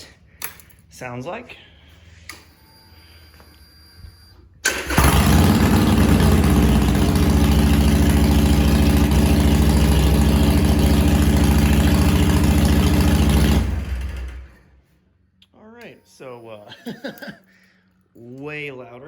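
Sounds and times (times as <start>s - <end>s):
motorcycle engine idling: 4.7s - 14.6s.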